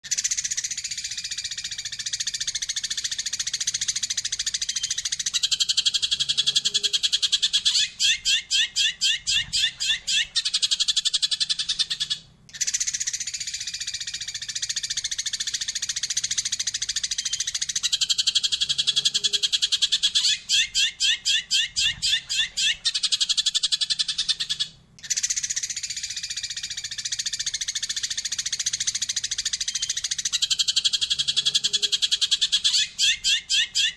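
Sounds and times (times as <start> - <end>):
sparrow chattering and chirping: 0.0 - 33.9.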